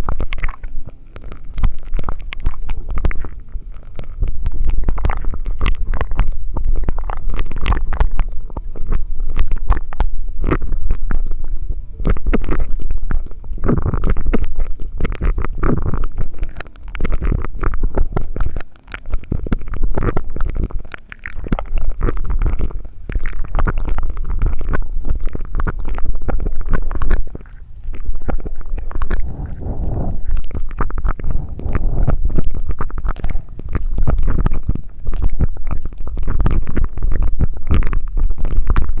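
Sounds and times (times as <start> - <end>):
wet mouth sounds: 0.0 - 38.9
steady low rumble: 24.3 - 34.9
quick mouth clicks: 27.0 - 34.8.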